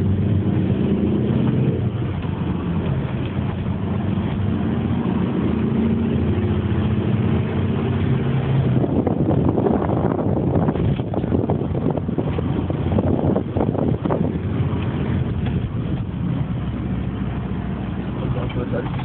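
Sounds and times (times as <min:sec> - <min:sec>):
car engine running: 0:00.0 - 0:19.0
road noise: 0:00.0 - 0:19.0
wind rushing: 0:03.4 - 0:17.0.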